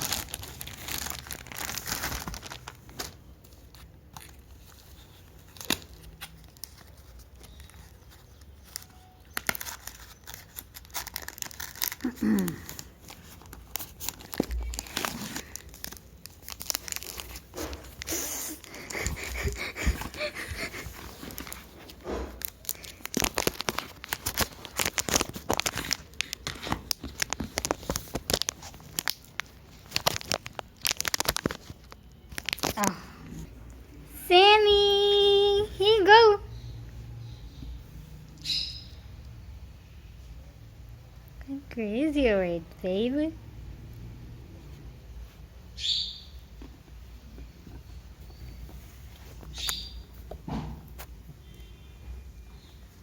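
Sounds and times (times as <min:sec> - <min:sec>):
packaging crinkling and tearing: 0:00.0 - 0:33.1.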